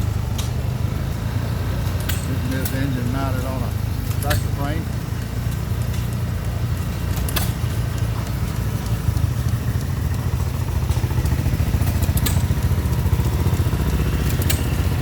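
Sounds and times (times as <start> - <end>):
small engine chugging: 0.0 - 15.0.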